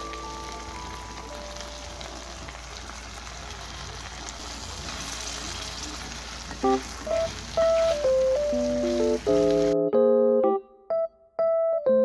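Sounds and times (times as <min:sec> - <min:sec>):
shrimp sizzling in a pan: 0:00.0 - 0:09.8
keyboard chord music: 0:06.6 - 0:12.0.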